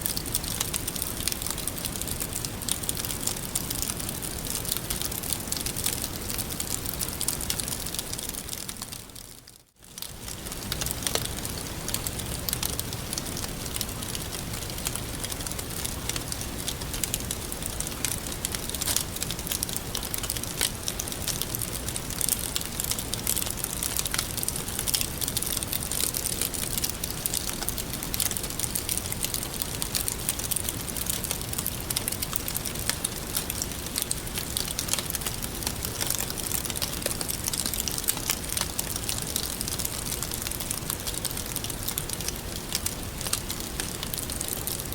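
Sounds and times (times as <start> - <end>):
fire crackles and pops: 0.0 - 44.9
wood fire hissing: 10.0 - 44.9.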